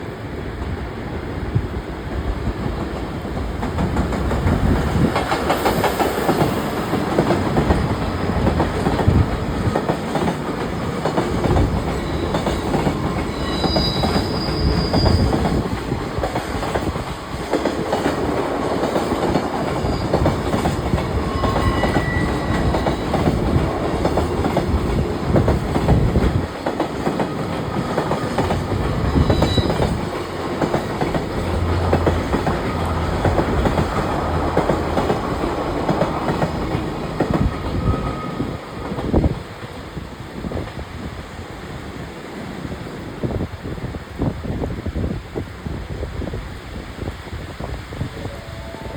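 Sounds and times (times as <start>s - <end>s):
train wheels clattering over rail joints: 2.7s - 38.2s
high wheel squeals: 12.0s - 15.6s, 21.1s - 23.3s, 29.0s - 30.0s, 37.7s - 38.6s.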